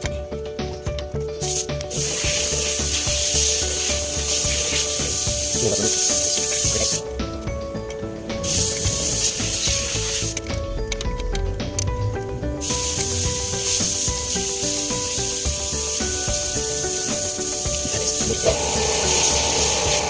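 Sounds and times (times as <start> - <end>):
background music: 0.0 - 20.0
spraying hiss: 1.4 - 7.1, 8.4 - 10.4, 12.6 - 20.0.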